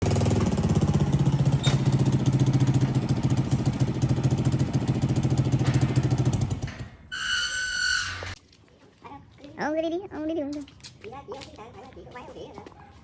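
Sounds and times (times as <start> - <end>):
generator engine running: 0.0 - 6.9.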